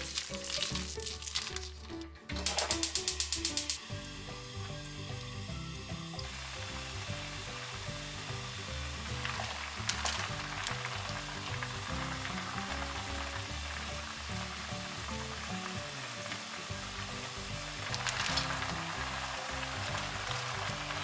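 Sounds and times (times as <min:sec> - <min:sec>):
background music: 0:00.0 - 0:21.0
pot boiling and sizzling: 0:00.0 - 0:21.0
sharp clicks: 0:02.4 - 0:03.9.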